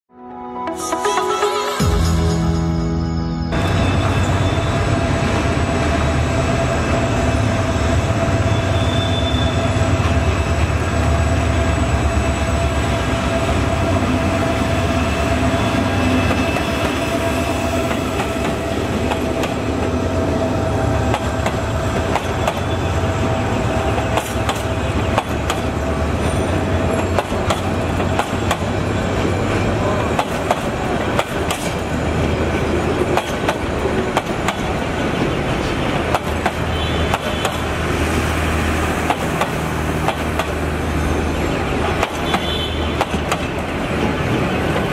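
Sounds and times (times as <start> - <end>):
diesel locomotive engine drone: 0.9 - 44.9
train wheels clicking over rail joints: 21.0 - 22.8, 23.9 - 37.8, 39.0 - 40.7, 41.8 - 44.9.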